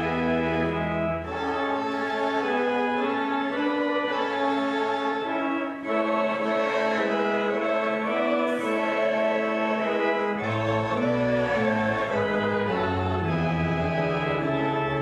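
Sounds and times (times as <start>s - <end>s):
deep organ pedal bass: 0.0s - 6.2s, 9.9s - 15.0s
church organ chords: 0.0s - 15.0s.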